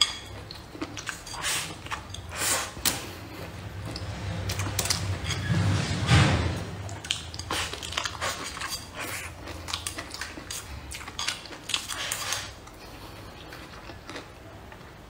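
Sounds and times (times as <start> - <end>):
biting and chewing food: 0.0 - 5.3, 6.8 - 15.0.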